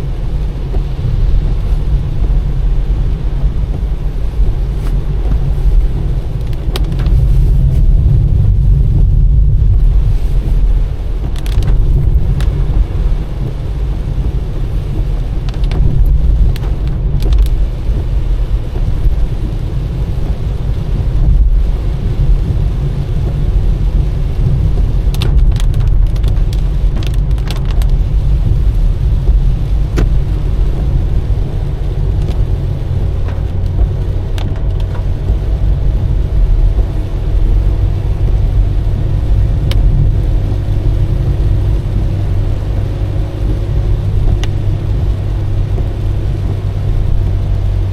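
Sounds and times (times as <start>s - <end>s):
car engine and tyres rumbling: 0.0s - 47.9s
light ticks: 11.2s - 20.7s, 23.1s - 37.8s, 39.2s - 40.4s, 41.2s - 47.3s.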